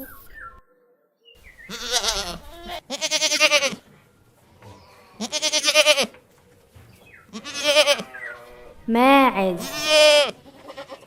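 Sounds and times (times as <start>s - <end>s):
goat bleating: 1.6s - 3.9s, 5.2s - 6.2s, 7.3s - 11.0s.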